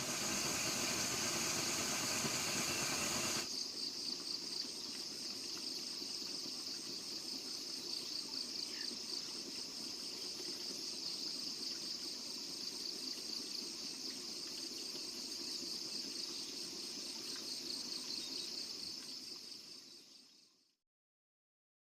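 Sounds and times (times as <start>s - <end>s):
high-pitched insect chorus: 0.0s - 20.5s
outdoor ambience: 0.0s - 20.6s.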